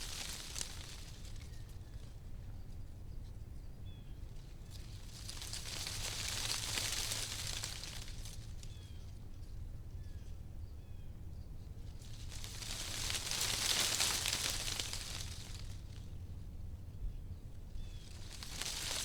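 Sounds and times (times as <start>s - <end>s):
wind rustling tree leaves: 0.0s - 2.3s, 4.2s - 9.4s, 11.8s - 16.9s, 17.6s - 19.0s.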